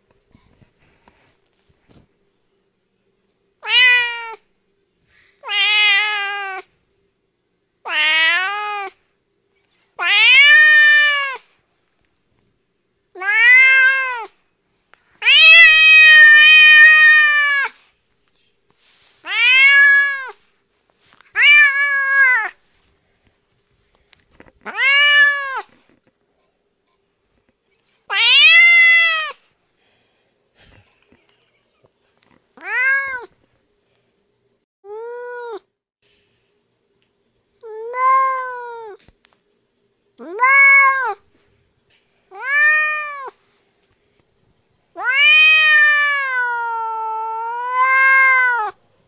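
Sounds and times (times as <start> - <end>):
cat meowing: 3.6 - 4.4, 5.4 - 6.7, 7.9 - 9.0, 10.0 - 11.4, 13.2 - 14.3, 15.2 - 17.8, 19.3 - 20.4, 21.3 - 22.6, 24.6 - 25.7, 28.1 - 29.4, 32.6 - 33.3, 40.2 - 41.2, 42.3 - 43.4, 45.0 - 48.8.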